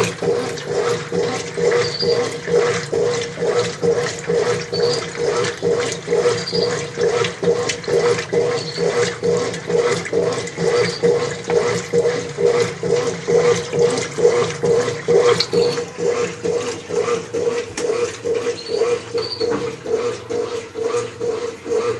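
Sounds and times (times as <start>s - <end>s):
washing machine motor humming: 0.0s - 21.9s
water sloshing in washing machine: 0.0s - 21.9s.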